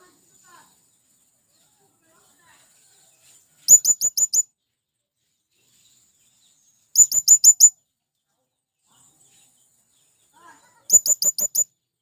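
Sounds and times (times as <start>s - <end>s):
parrot shrill high-pitched call: 3.7s - 4.4s, 7.0s - 7.7s, 10.9s - 11.7s.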